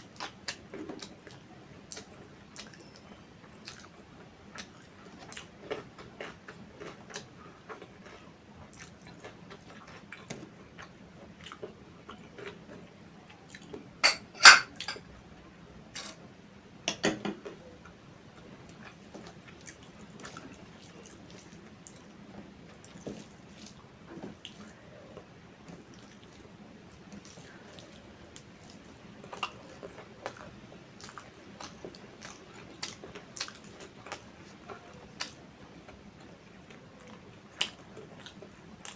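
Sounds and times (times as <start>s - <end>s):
person chewing wetly: 3.6s - 12.7s, 25.7s - 26.5s, 27.1s - 38.9s.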